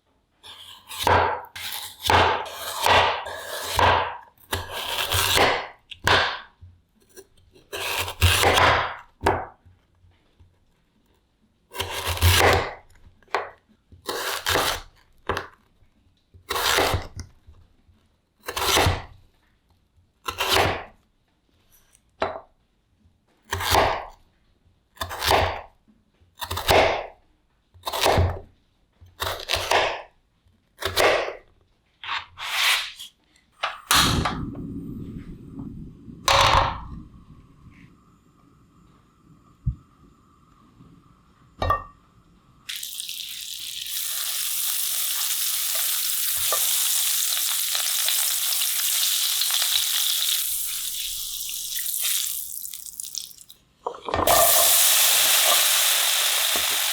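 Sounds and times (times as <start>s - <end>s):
knife slicing potatoes: 0.5s - 6.5s, 7.6s - 9.5s, 11.7s - 13.5s, 14.1s - 15.4s, 16.5s - 17.2s, 18.4s - 19.1s, 20.3s - 20.9s, 25.0s - 25.7s, 29.2s - 30.1s, 30.8s - 31.4s, 32.0s - 33.1s.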